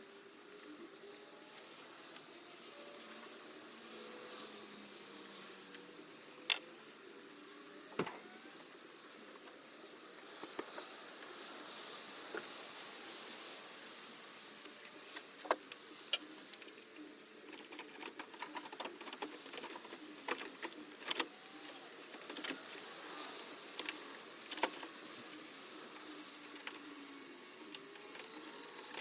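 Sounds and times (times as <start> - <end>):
small parts and tools clicking: 17.5 - 29.0.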